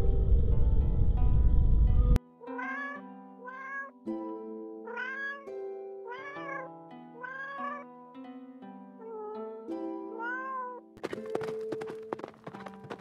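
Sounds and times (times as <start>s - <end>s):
soft music with held notes: 0.0s - 12.1s
cat meowing: 2.5s - 4.0s, 4.9s - 5.5s, 6.1s - 7.8s, 9.0s - 9.4s, 10.1s - 10.8s.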